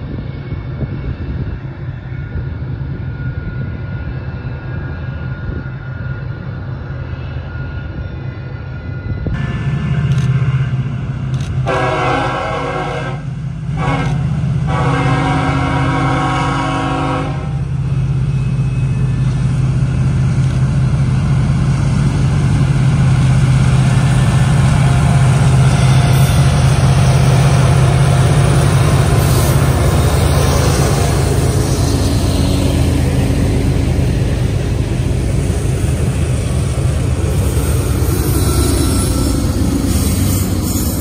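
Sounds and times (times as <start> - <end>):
diesel locomotive engine drone: 0.0 - 41.0
train horn blasts: 11.6 - 17.7.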